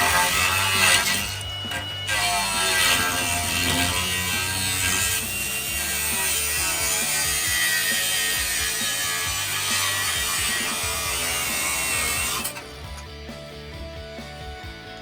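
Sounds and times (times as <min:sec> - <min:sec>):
power saw cutting sheet metal: 0:00.0 - 0:13.0
music playing: 0:00.0 - 0:15.0.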